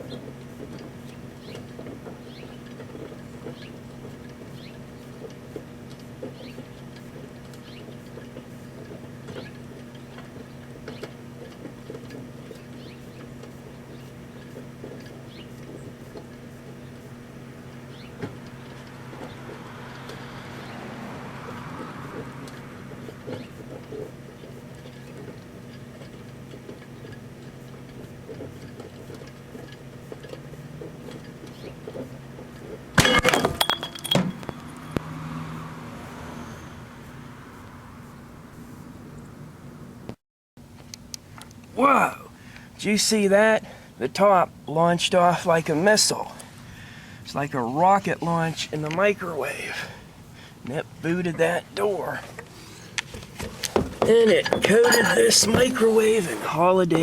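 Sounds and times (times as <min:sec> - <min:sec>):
microwave oven humming: 0:00.0 - 0:33.3
clattering: 0:33.0 - 0:34.7.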